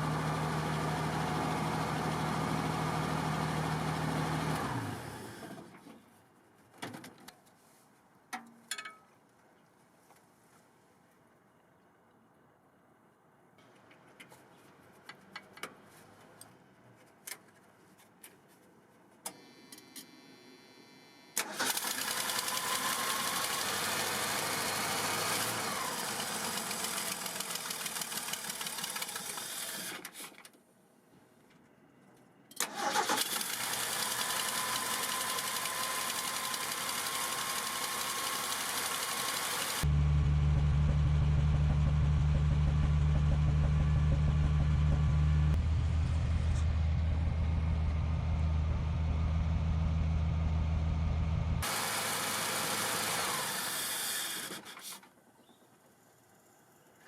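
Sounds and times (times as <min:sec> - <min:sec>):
truck engine cranking and running: 0:21.4 - 0:30.1, 0:32.5 - 0:55.0.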